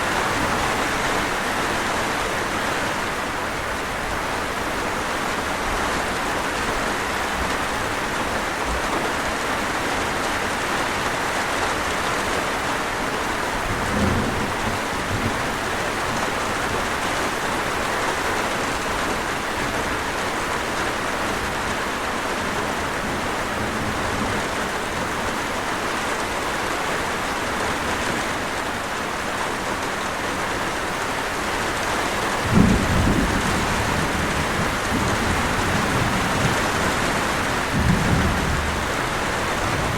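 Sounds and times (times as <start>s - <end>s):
steady rain falling: 0.0s - 39.9s
thunder rolling: 13.5s - 16.8s, 32.4s - 39.9s.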